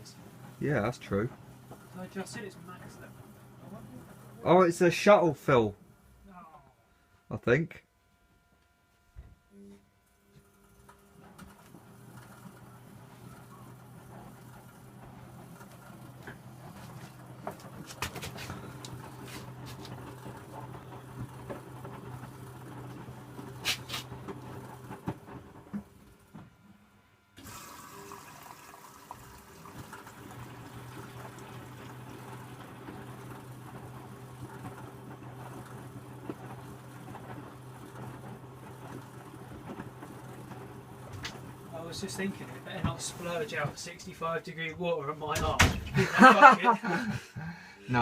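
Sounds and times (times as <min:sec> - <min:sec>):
washing machine motor hum: 0:00.0 - 0:07.6, 0:08.3 - 0:48.0
water filling washing machine drum: 0:11.9 - 0:25.5, 0:27.4 - 0:43.7.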